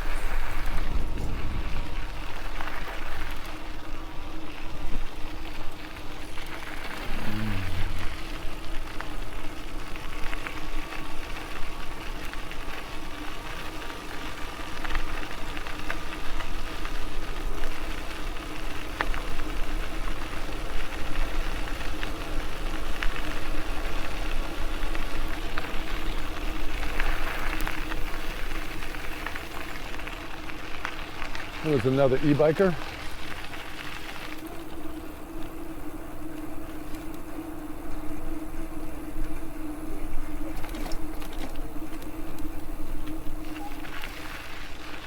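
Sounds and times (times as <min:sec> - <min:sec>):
tyre and wind noise: 0:00.0 - 0:04.1
electric motor whine: 0:00.0 - 0:17.8, 0:18.6 - 0:45.0.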